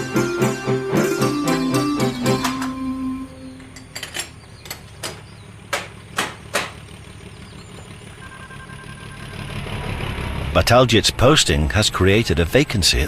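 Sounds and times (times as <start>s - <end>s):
engine idling: 0.0s - 13.0s
sharp knocks: 4.6s - 6.8s.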